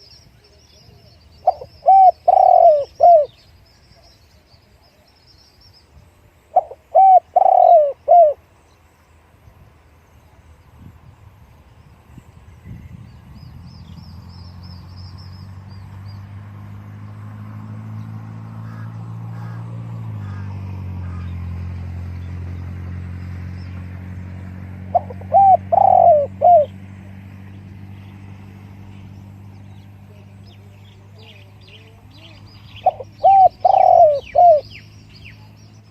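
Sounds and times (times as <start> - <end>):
small birds chirping: 0.0 - 35.9
dove cooing: 1.4 - 3.4, 6.5 - 8.4, 24.8 - 26.8, 31.0 - 35.6.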